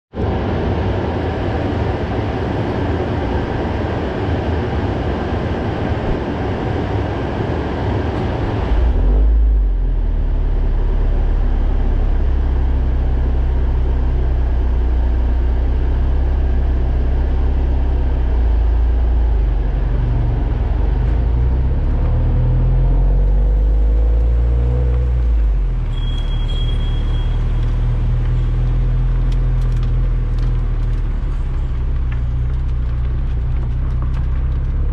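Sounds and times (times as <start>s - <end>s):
car exhaust drone: 0.1s - 34.9s
broad rushing noise: 0.2s - 9.1s.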